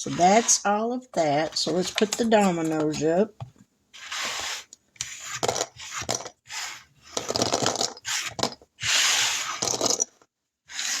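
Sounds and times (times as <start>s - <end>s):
dominoes clattering and scraping: 4.0s - 11.0s.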